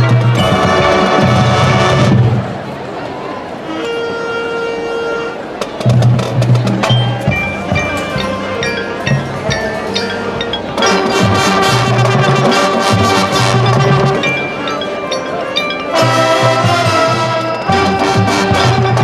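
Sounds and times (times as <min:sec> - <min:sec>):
marching band playing: 0:00.0 - 0:19.0
mallet and hand percussion: 0:05.7 - 0:19.0.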